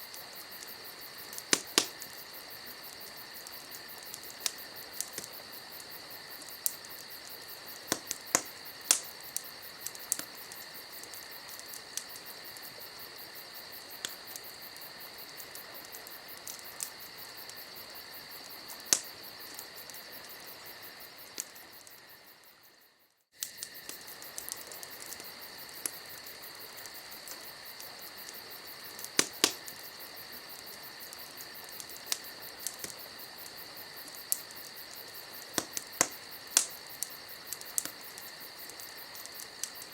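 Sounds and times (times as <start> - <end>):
campfire crackling and popping: 0.0 - 39.9
insect chirring: 0.0 - 39.9.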